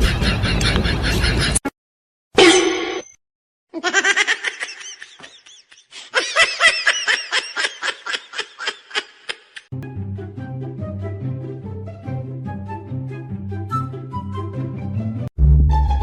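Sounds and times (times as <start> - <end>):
person laughing: 3.8 - 9.7.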